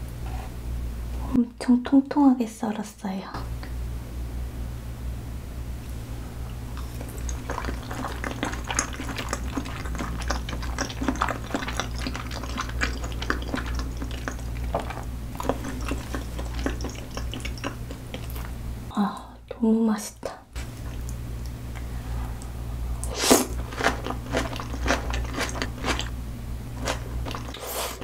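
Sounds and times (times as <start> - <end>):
wet chewing mouth clicks: 6.7 - 18.6, 20.6 - 21.6, 22.4 - 26.1, 26.8 - 28.0.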